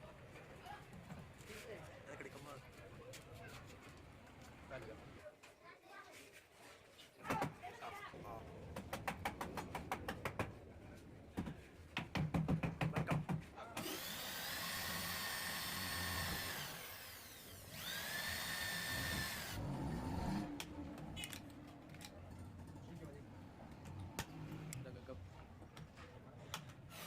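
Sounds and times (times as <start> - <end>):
power tool whining: 13.8 - 21.5.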